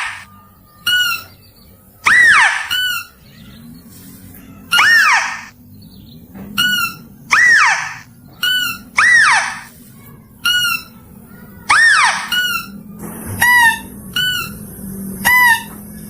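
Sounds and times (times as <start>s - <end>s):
mouse-deer calls: 0.0s - 0.3s, 2.0s - 3.5s, 4.6s - 5.5s, 6.6s - 9.7s, 11.7s - 12.7s.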